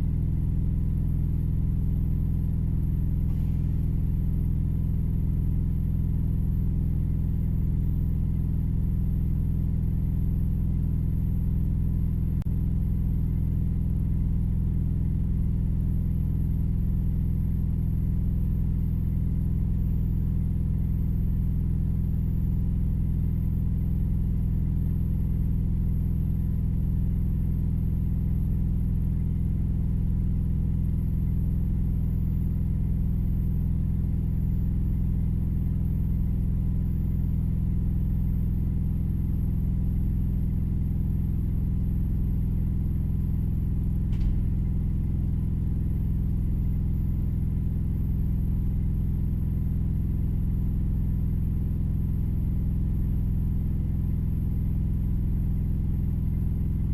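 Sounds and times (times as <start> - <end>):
brief click: 44.1 - 44.4.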